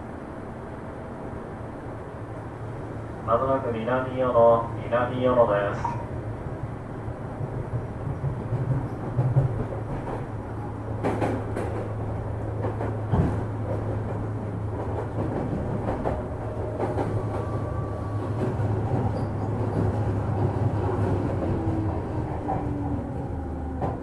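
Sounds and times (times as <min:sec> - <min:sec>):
train motors and wheels humming: 0:00.0 - 0:24.0.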